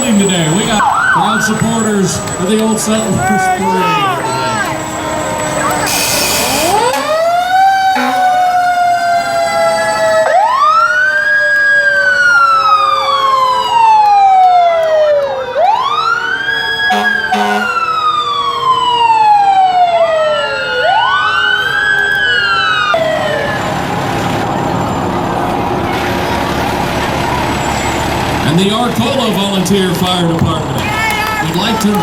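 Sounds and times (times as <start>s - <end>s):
mechanical siren winding up: 5.4s - 7.3s.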